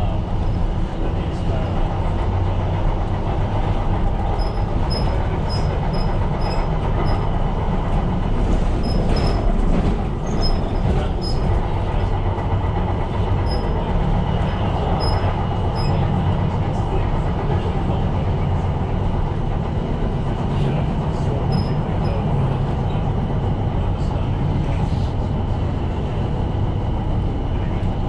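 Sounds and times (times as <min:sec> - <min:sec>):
train wheels rumbling on track: 0:00.0 - 0:28.0
high wheel squeaks: 0:04.2 - 0:07.4, 0:08.8 - 0:09.6, 0:10.2 - 0:11.6, 0:14.5 - 0:16.1, 0:21.5 - 0:22.2.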